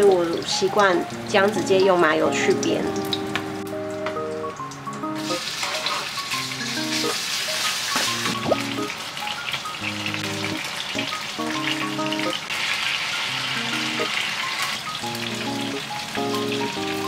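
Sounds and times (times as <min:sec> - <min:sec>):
background music: 0:00.0 - 0:12.5, 0:13.3 - 0:17.0
chicken sizzling in a pan: 0:05.1 - 0:17.0.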